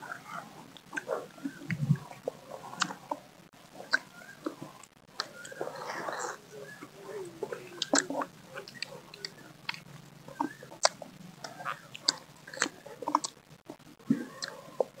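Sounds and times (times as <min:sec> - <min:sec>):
wet mouth clicks and smacks: 0:02.8 - 0:03.0, 0:07.8 - 0:13.4
crunchy biting and chewing: 0:07.4 - 0:13.4.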